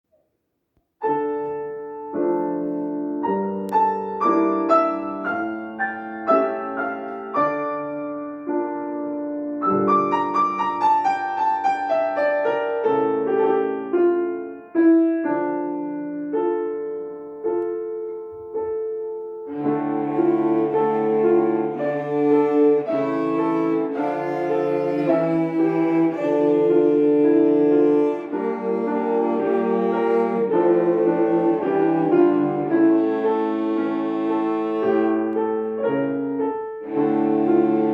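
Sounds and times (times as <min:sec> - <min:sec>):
piano accompaniment: 0:01.0 - 0:37.9
cellos bowing sustained notes: 0:19.5 - 0:35.6, 0:36.8 - 0:37.9.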